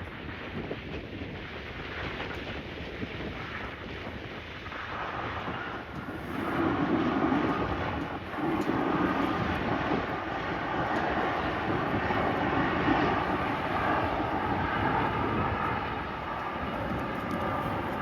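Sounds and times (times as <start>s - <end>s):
jet engines running: 1.6s - 18.0s.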